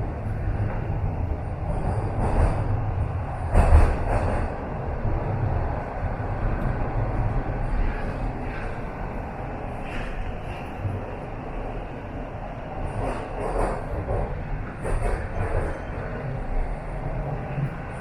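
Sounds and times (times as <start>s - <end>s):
train clatter: 0.0s - 9.2s, 12.8s - 18.0s
subway train wheels rumbling: 0.0s - 18.0s.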